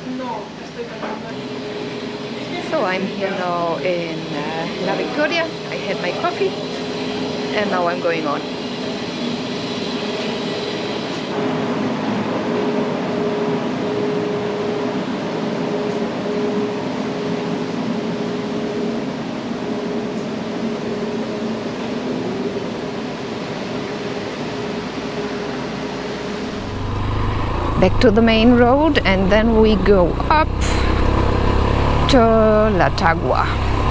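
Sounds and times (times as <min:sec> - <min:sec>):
road noise: 0:26.2 - 0:33.9
motorcycle engine running: 0:26.5 - 0:33.9.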